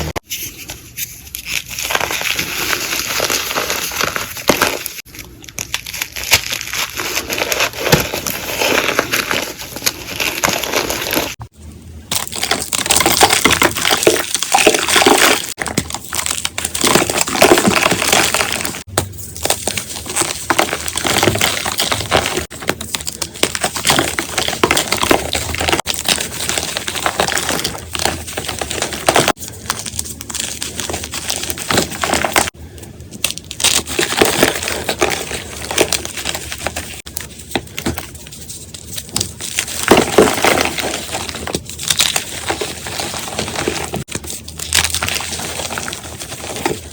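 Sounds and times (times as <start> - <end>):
chalk crunching and crackling: 0.0 - 11.4, 12.1 - 46.9.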